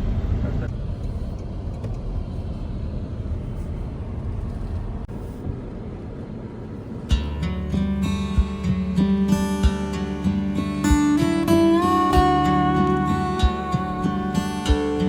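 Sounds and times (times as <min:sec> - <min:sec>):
car driving rumble: 0:00.0 - 0:15.0
acoustic guitar music: 0:07.0 - 0:15.0.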